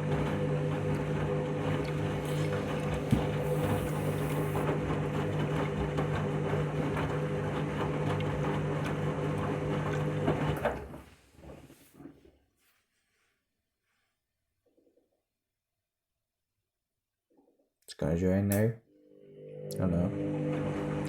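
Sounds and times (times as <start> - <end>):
washing machine motor hum: 0.0 - 11.9, 19.4 - 21.0.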